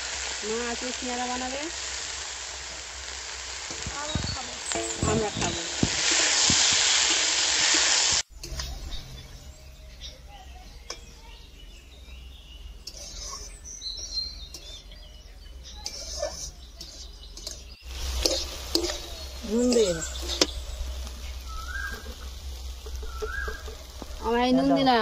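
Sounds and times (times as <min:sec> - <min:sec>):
potatoes sizzling in oil: 0:00.0 - 0:09.1, 0:12.8 - 0:15.0, 0:15.6 - 0:25.0
birds chirping: 0:00.0 - 0:25.0
low rumble: 0:17.9 - 0:25.0.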